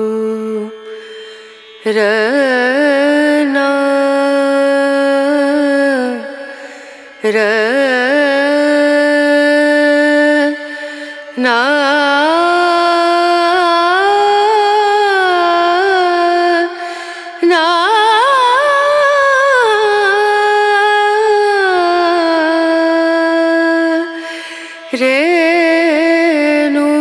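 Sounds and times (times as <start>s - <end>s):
solo voice singing: 24.9s - 27.0s.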